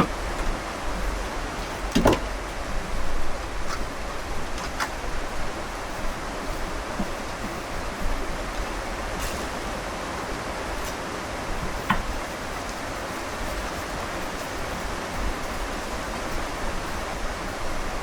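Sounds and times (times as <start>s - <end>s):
light clicks and knocks: 0.0s - 2.6s, 11.6s - 12.4s
steady rain: 0.0s - 18.0s.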